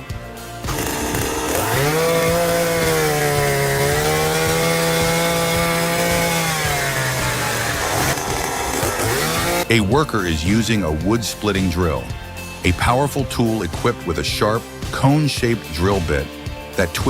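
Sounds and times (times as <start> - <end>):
chainsaw cutting: 0.6 - 9.8.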